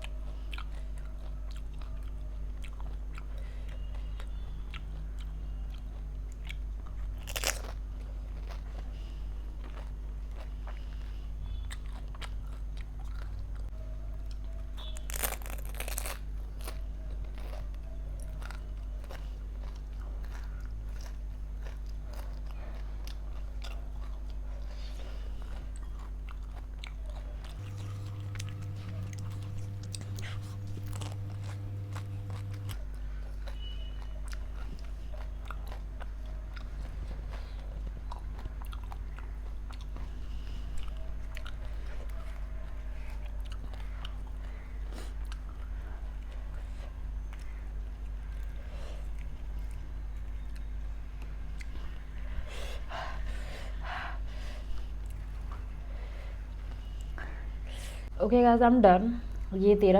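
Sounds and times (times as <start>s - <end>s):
crisp shells being bitten and chewed: 0.0s - 52.5s
steady low hum: 18.2s - 59.9s.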